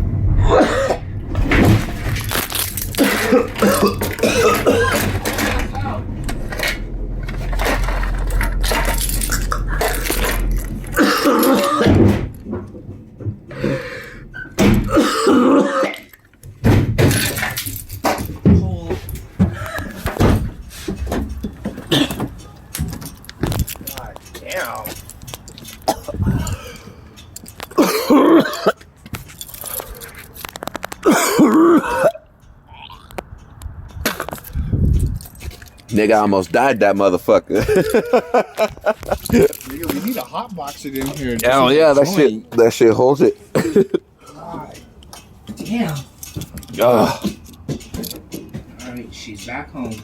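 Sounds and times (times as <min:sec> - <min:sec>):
truck rumbling: 0:00.0 - 0:50.0
man coughing hard: 0:00.4 - 0:01.1, 0:02.9 - 0:05.3, 0:10.9 - 0:12.1, 0:14.8 - 0:16.1, 0:21.8 - 0:22.3, 0:25.9 - 0:26.8, 0:27.8 - 0:28.8, 0:31.0 - 0:32.2, 0:43.5 - 0:44.2
clattering and knocks: 0:00.7 - 0:15.2, 0:15.8 - 0:31.3, 0:44.7 - 0:50.0.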